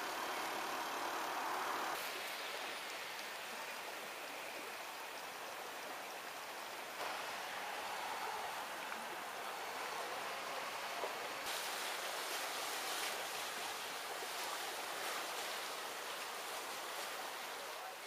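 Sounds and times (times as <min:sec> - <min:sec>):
heavy rain pouring: 0:06.4 - 0:18.0.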